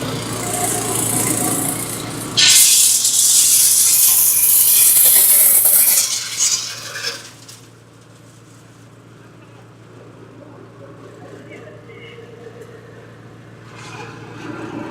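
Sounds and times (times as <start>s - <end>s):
machine low hum: 0.0s - 5.7s.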